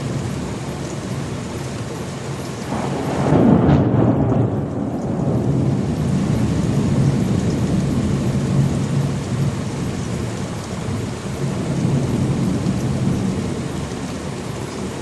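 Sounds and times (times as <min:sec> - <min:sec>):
rain hissing: 0:00.0 - 0:15.0
thunder rumbling: 0:02.6 - 0:15.0.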